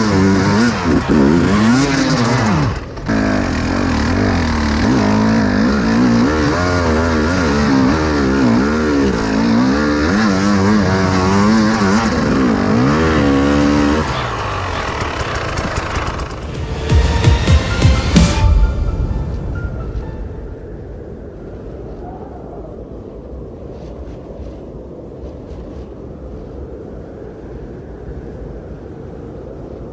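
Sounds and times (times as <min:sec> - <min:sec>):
motorcycle engine revving: 0:00.0 - 0:18.4.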